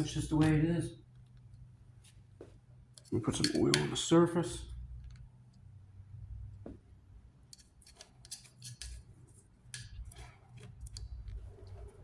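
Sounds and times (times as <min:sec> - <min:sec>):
low steady hum: 0:00.0 - 0:12.0
small parts clicking and tapping: 0:05.0 - 0:05.7, 0:07.5 - 0:09.1, 0:09.7 - 0:11.8.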